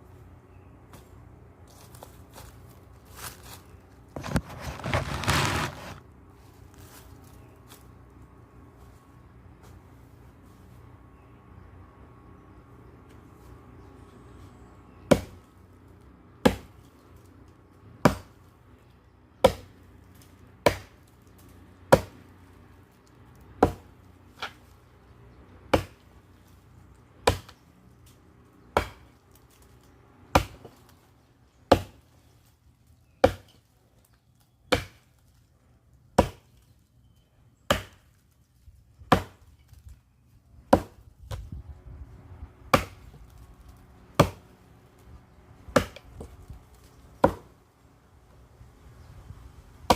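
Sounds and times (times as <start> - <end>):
axe chopping firewood: 15.1 - 15.4, 16.4 - 16.8, 18.0 - 18.4, 19.4 - 19.8, 20.6 - 21.0, 21.8 - 22.2, 23.6 - 24.6, 25.7 - 26.0, 27.2 - 27.6, 28.7 - 29.2, 30.3 - 30.8, 31.7 - 32.1, 33.2 - 33.6, 34.7 - 35.0, 36.2 - 36.6, 37.7 - 38.1, 39.0 - 39.5, 40.7 - 41.5, 42.7 - 43.2, 44.1 - 44.5, 45.6 - 46.4, 47.1 - 47.6.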